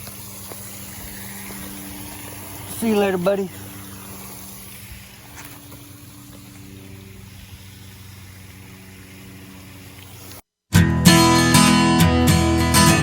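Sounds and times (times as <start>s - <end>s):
low motor hum: 0.0s - 10.4s
faint outdoor background: 0.0s - 13.0s
strummed acoustic guitar music: 10.7s - 13.0s.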